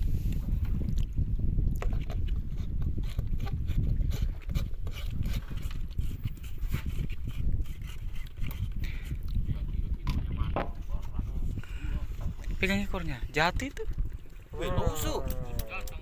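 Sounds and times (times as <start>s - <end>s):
wind rumble on microphone: 0.0s - 16.0s
knocks on wooden boat: 10.0s - 10.8s.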